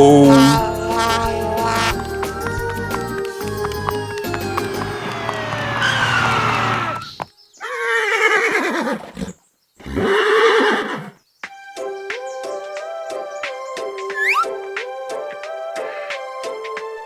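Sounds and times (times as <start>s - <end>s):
background music: 0.0s - 7.2s, 11.4s - 17.0s
horse whinny sound effect: 4.7s - 9.1s.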